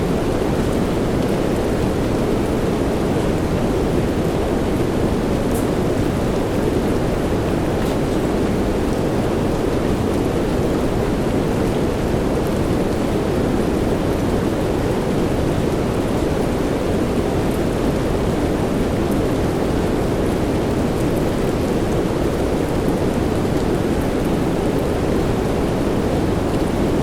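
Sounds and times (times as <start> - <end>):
soft rain hiss: 0.0 - 27.0
faint raindrop ticks: 5.5 - 5.8.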